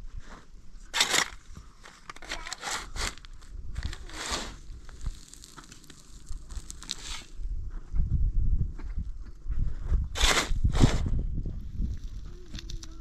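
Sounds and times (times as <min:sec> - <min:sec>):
crunching and rustling: 0:00.2 - 0:07.5, 0:10.1 - 0:13.0.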